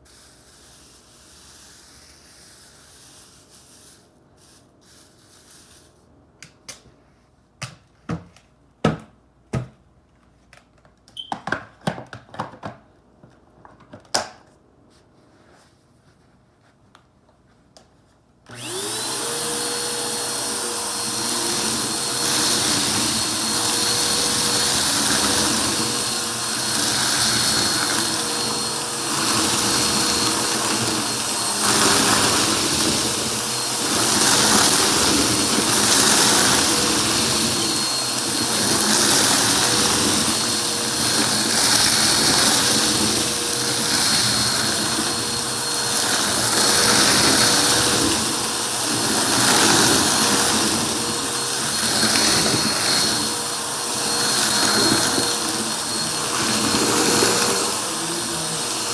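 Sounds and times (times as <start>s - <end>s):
vacuum cleaner running: 18.5s - 58.9s.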